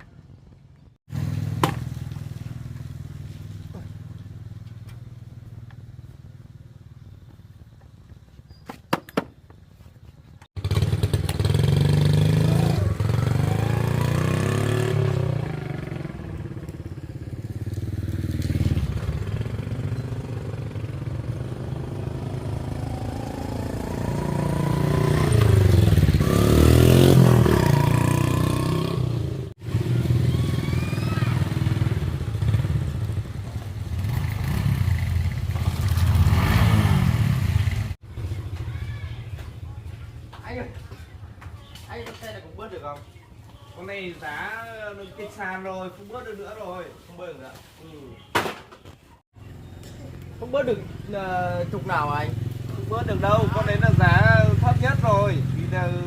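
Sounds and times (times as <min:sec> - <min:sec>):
motorbike engine revving: 0:10.6 - 0:38.6.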